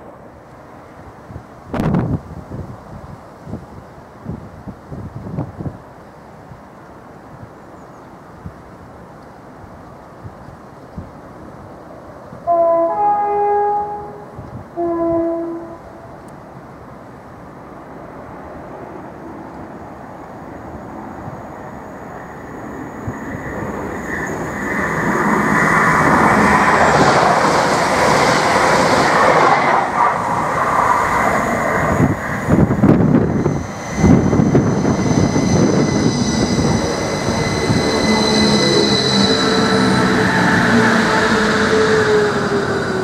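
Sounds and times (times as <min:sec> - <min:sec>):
train wheel and running noise: 0:15.8 - 0:43.0
high multi-tone whine: 0:30.8 - 0:43.0.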